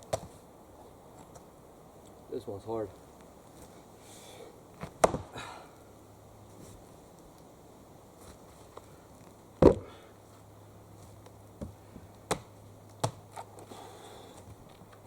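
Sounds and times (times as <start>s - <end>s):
axe chopping log: 4.8s - 5.4s, 9.6s - 10.0s, 11.6s - 13.2s.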